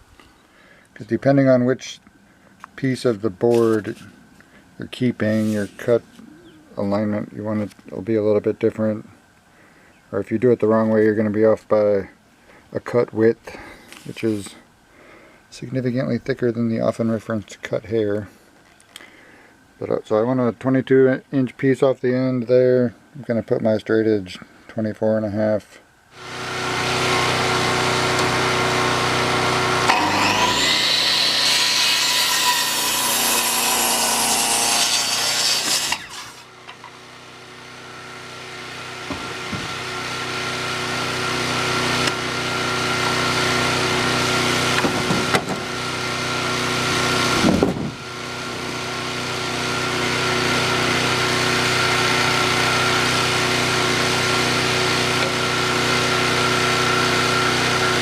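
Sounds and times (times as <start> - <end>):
circular saw cutting wood: 26.1 - 58.0.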